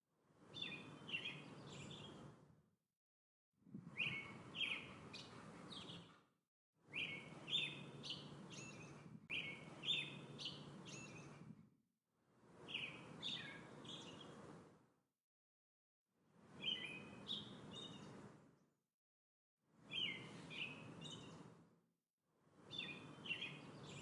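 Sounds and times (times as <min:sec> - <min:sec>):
steady outdoor hiss: 0:00.4 - 0:02.2, 0:03.8 - 0:06.0, 0:06.9 - 0:11.3, 0:12.4 - 0:14.6, 0:19.8 - 0:21.4, 0:22.6 - 0:24.0
birds chirping: 0:00.6 - 0:02.2, 0:03.9 - 0:06.2, 0:06.9 - 0:11.4, 0:12.6 - 0:14.4, 0:16.6 - 0:18.2, 0:19.9 - 0:21.5, 0:22.7 - 0:24.0.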